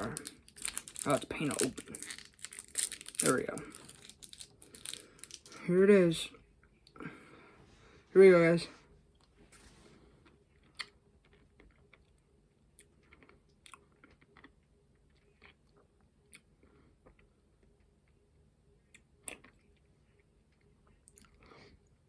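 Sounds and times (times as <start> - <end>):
candy clicking against teeth: 0.0 - 5.6.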